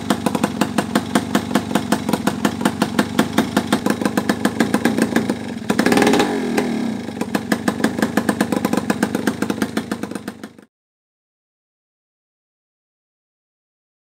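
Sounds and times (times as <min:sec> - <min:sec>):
two-stroke engine idling and revving: 0:00.0 - 0:10.7.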